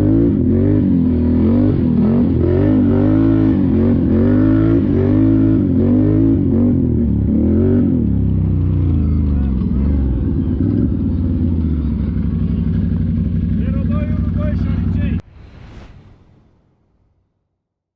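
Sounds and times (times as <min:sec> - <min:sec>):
engine revving up and down: 0:00.0 - 0:08.2.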